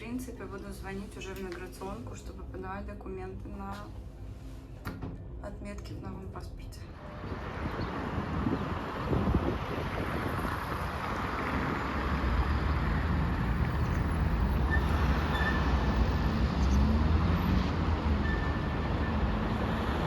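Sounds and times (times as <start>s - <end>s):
street traffic passing: 0.0s - 20.0s
wind on microphone: 7.0s - 12.4s.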